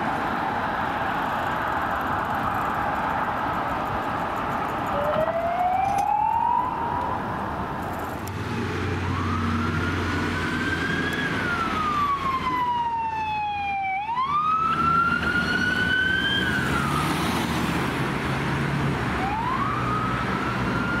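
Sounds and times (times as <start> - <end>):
emergency siren wailing: 4.9 - 7.5, 8.6 - 17.6, 19.1 - 21.0.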